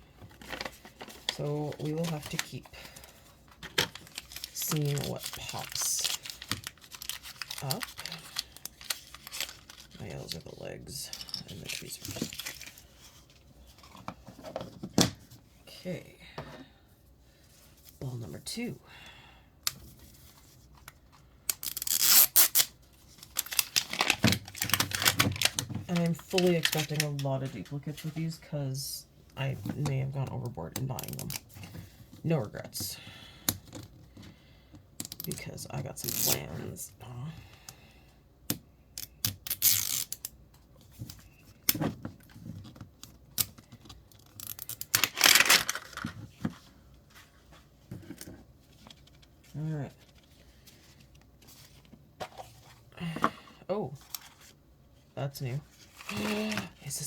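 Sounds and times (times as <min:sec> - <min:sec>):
wrapper crinkling and clicking: 0:03.6 - 0:10.4, 0:11.1 - 0:12.8, 0:20.8 - 0:27.2, 0:43.3 - 0:46.2
wrapper tearing: 0:03.9 - 0:10.0, 0:21.6 - 0:25.6, 0:44.2 - 0:46.1.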